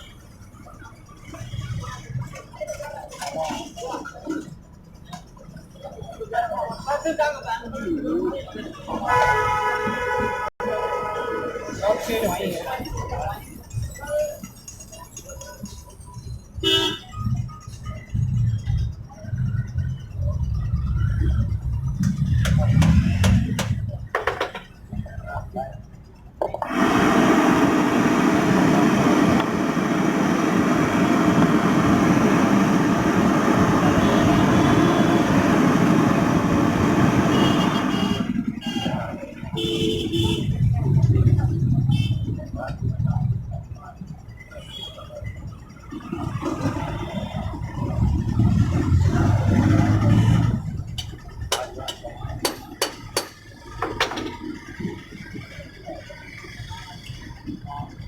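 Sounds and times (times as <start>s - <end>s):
generator engine running: 26.6s - 38.8s.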